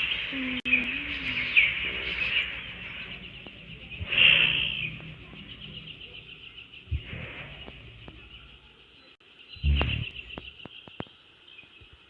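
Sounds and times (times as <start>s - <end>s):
birds chirping: 0.0s - 12.0s
soft low thumps: 0.7s - 8.8s, 9.6s - 10.7s.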